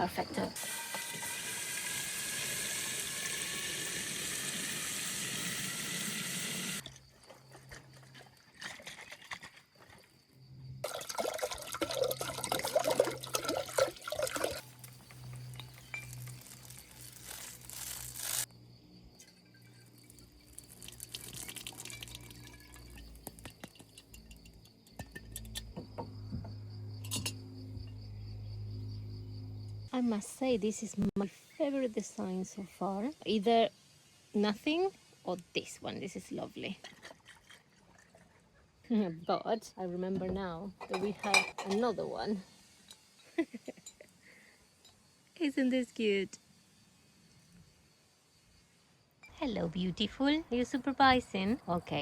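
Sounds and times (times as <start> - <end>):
liquid splashing: 10.8 - 14.6
liquid pouring into bottle: 10.8 - 14.9, 20.1 - 24.1.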